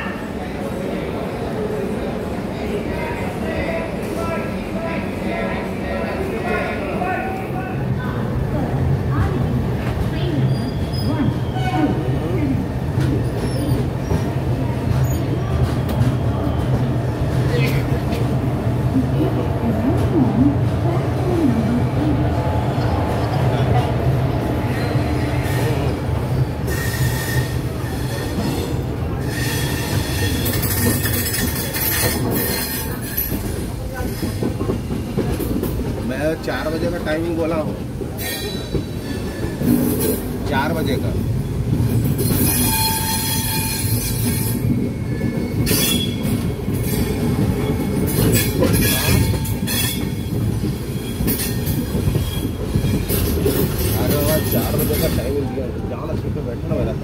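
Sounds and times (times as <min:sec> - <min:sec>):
train wheels rumbling on track: 0:00.0 - 0:57.0
high wheel squeal: 0:26.7 - 0:33.2, 0:42.3 - 0:53.9
metallic wheel squeals: 0:42.3 - 0:47.2.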